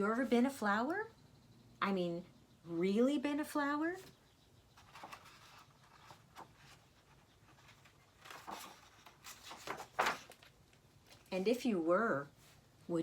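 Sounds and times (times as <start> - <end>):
paper pages rustling: 4.8 - 11.5.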